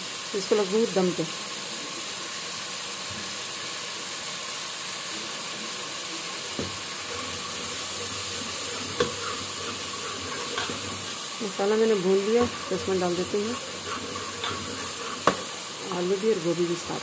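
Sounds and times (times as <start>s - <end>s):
masala sizzling in hot oil: 0.0s - 17.0s
ladle knocking against pot: 14.0s - 15.5s.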